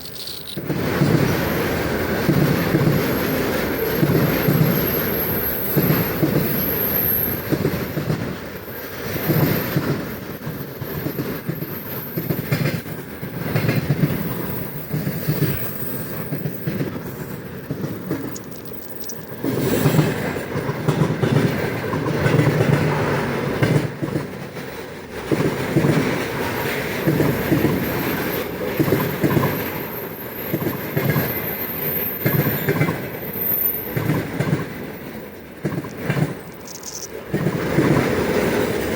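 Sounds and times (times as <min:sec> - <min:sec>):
freight train wheels clattering: 0:00.0 - 0:38.9.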